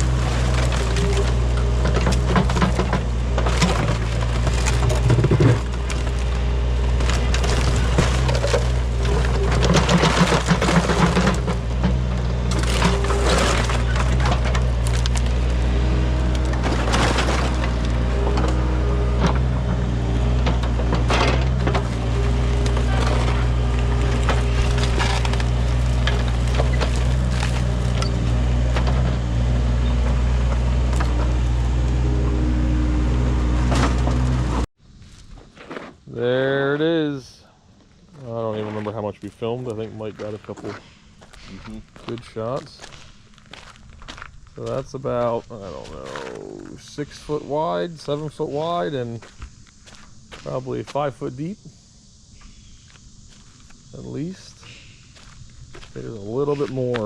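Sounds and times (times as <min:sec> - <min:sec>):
debris cracking and crunching: 0:00.0 - 0:32.2, 0:38.2 - 0:46.8
excavator engine running: 0:00.0 - 0:34.7, 0:38.1 - 0:52.3.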